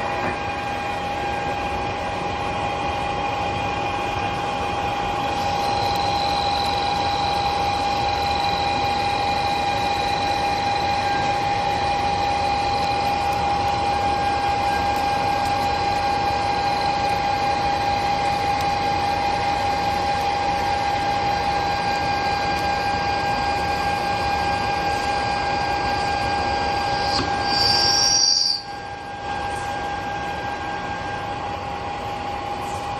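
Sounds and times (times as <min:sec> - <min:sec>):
metal lathe whining: 0:00.0 - 0:32.9
high squeal: 0:26.0 - 0:31.2.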